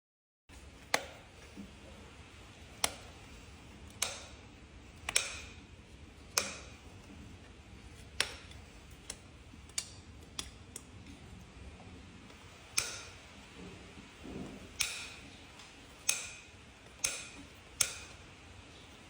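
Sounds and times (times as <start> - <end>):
hoof-trimming tool clicks: 0.8 - 1.7, 2.7 - 4.4, 5.0 - 5.6, 6.3 - 7.2, 8.1 - 11.3, 12.2 - 13.5, 14.6 - 19.0.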